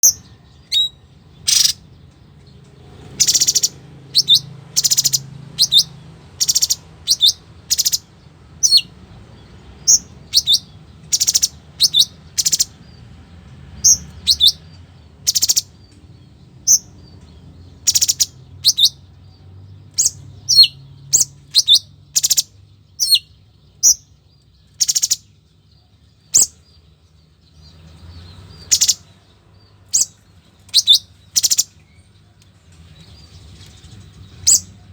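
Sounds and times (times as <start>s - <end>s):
bird chirping and whistling: 0.0s - 1.8s, 3.1s - 8.9s, 9.8s - 12.7s, 13.9s - 14.6s, 15.3s - 15.7s, 17.8s - 19.0s, 20.0s - 24.1s, 24.8s - 25.3s, 26.3s - 26.6s, 28.6s - 29.0s, 29.9s - 31.8s, 34.3s - 34.9s.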